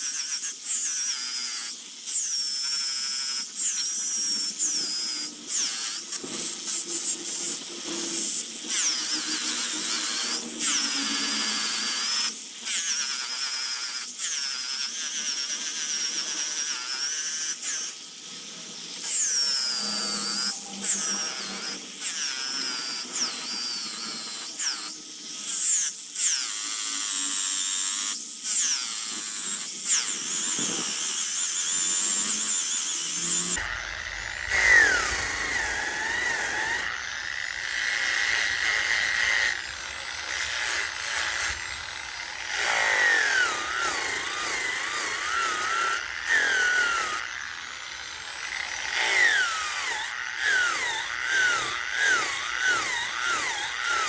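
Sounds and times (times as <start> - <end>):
rotary power tool carving wood: 0.0 - 54.0.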